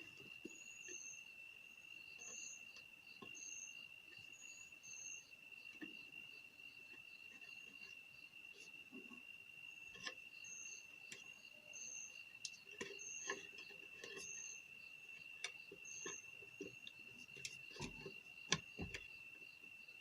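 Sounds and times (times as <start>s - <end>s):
high insect drone: 0.0s - 20.0s
small parts and tools clicking: 15.4s - 19.1s.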